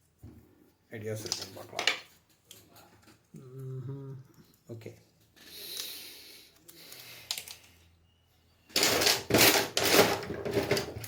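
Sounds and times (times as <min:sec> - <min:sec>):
small hard objects rattling: 0:08.7 - 0:11.0.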